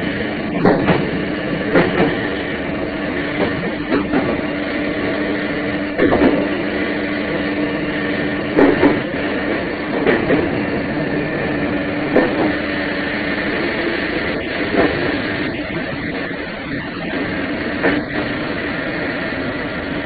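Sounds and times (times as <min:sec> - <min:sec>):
train running hum: 0:00.0 - 0:20.0
wheel clacks over rail joints: 0:00.4 - 0:02.3, 0:06.0 - 0:06.5, 0:08.5 - 0:10.9, 0:12.0 - 0:12.6.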